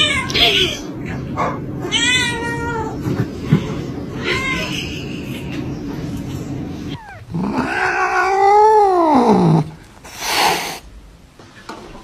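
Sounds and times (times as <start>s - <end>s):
cat yowling: 6.9s - 9.8s.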